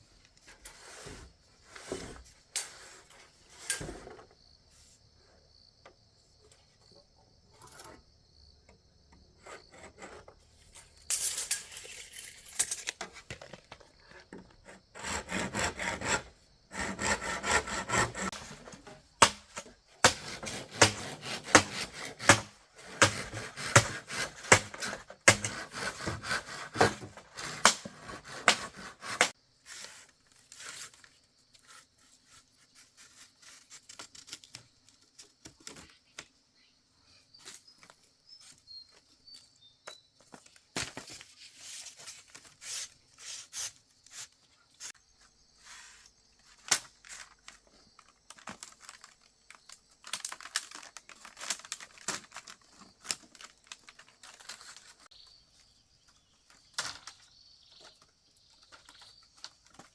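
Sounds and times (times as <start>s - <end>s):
hand tool scraping wood: 0.4s - 4.3s, 9.1s - 11.2s, 13.0s - 31.0s.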